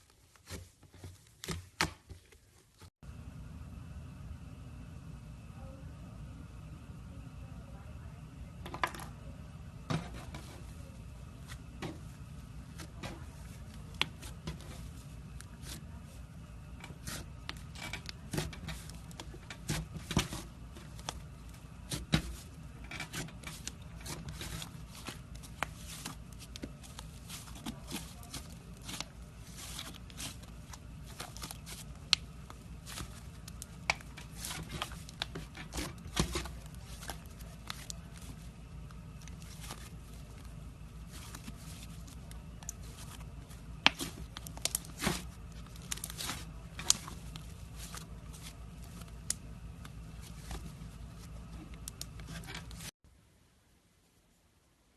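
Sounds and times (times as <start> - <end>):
low steady hum: 0.0 - 54.9.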